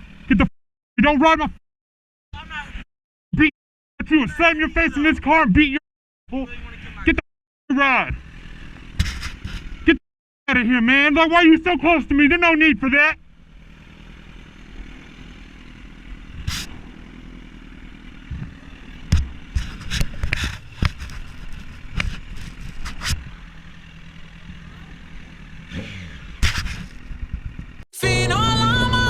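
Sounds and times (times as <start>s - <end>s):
motorcycle engine idling: 0.0s - 0.4s, 7.8s - 9.9s, 10.9s - 29.0s
sharp knocks and clatter: 19.1s - 23.2s.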